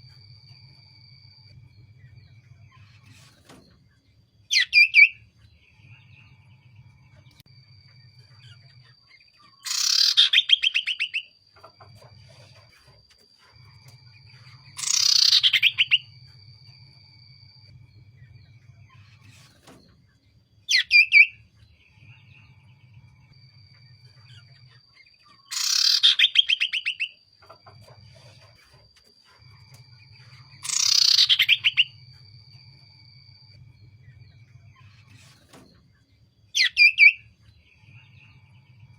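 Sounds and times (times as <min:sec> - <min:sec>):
bird rattling trills: 0:14.7 - 0:16.1, 0:25.4 - 0:27.6, 0:30.6 - 0:31.9.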